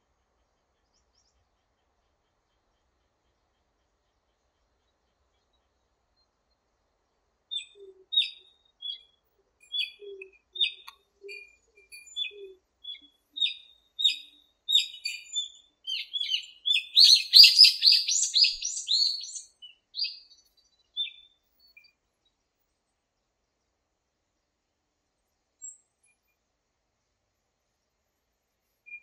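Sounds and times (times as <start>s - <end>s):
birds chirping: 7.5s - 22.0s.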